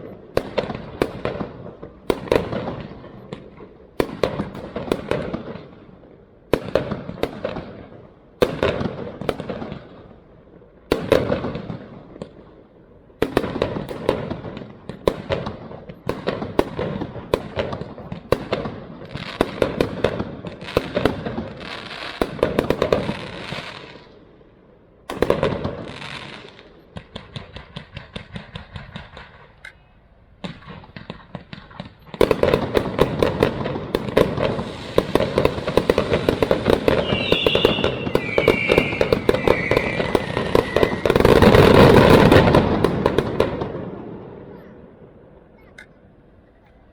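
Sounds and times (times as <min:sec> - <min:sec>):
fireworks crackling: 0:00.0 - 0:45.5
quick firework pops: 0:27.0 - 0:29.8
firework shells bursting: 0:30.5 - 0:43.7.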